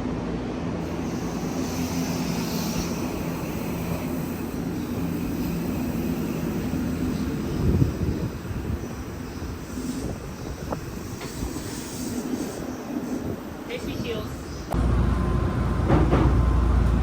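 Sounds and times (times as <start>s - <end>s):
electric train running: 0.8s - 14.0s.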